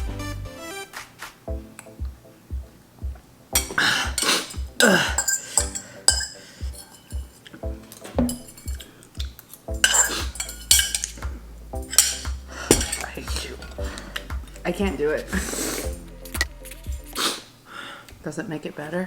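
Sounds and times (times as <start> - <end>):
background music with steady beat: 0.0 - 17.4
utensils clinking against dishes: 3.6 - 13.8.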